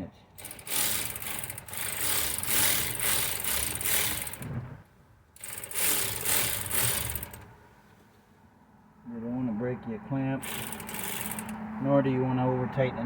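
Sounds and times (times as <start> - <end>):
cordless power ratchet running: 0.4 - 4.6, 5.4 - 7.6, 10.4 - 11.6.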